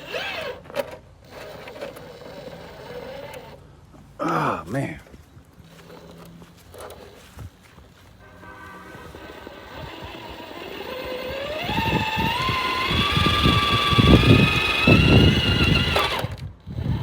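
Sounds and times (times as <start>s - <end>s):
electric motor whining: 0.0s - 3.6s, 8.8s - 17.0s.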